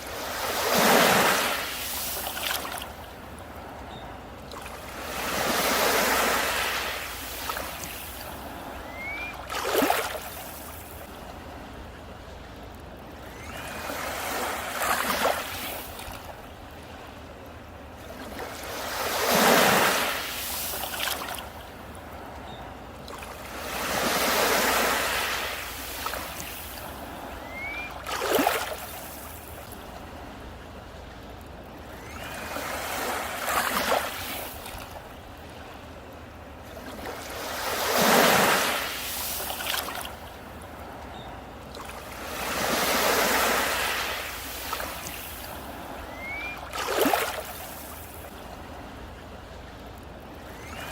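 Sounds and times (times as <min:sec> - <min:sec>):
sea waves breaking on beach: 0:00.0 - 0:50.9.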